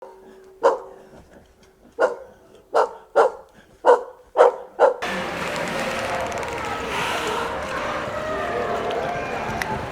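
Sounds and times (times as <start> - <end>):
dog barking: 0.0 - 1.0, 2.0 - 5.0.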